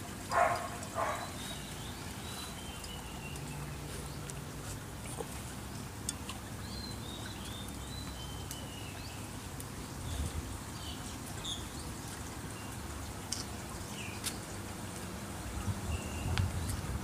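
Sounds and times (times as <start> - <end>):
low outdoor hum: 0.0 - 17.0
small birds chirping: 0.3 - 5.2, 6.0 - 14.6.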